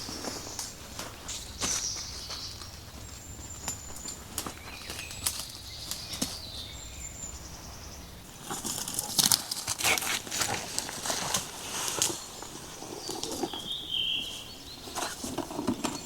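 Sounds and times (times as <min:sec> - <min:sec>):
footsteps through undergrowth: 0:00.0 - 0:06.8, 0:08.4 - 0:15.4
twigs snapping: 0:03.6 - 0:06.5, 0:08.5 - 0:13.6
high bird calls: 0:09.7 - 0:15.3.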